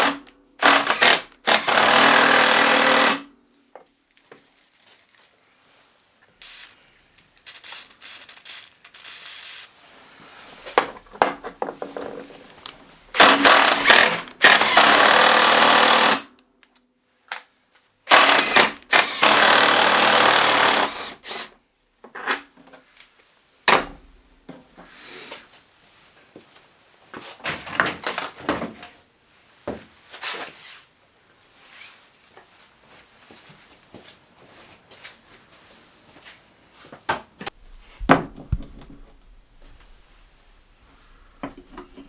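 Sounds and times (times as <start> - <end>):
power tool running: 0.0 - 3.2, 13.2 - 16.2, 18.1 - 21.5.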